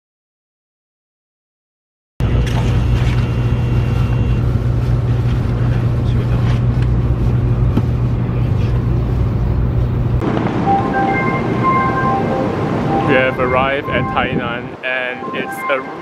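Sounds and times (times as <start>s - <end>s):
low train hum: 2.2s - 16.0s
rushing noise: 7.0s - 16.0s.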